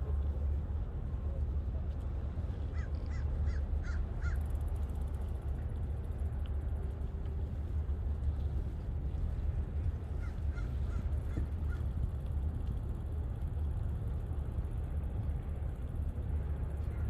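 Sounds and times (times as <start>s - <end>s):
steady low rumble: 0.0s - 17.0s
crow cawing: 2.7s - 4.4s.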